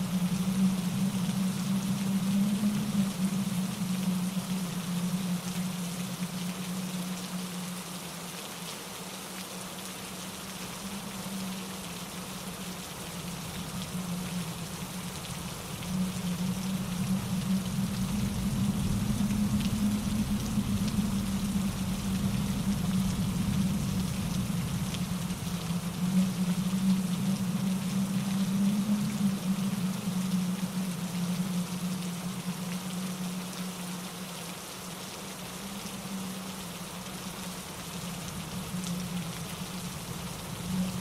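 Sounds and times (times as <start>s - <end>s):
steady rain: 0.0s - 41.0s
wind in the trees: 0.0s - 41.0s
stream tumbling over rocks: 9.2s - 34.3s.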